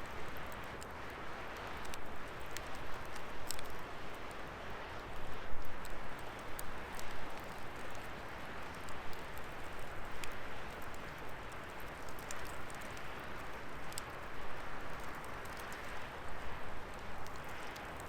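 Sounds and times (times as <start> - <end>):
firewood burning and crackling: 0.0 - 18.0.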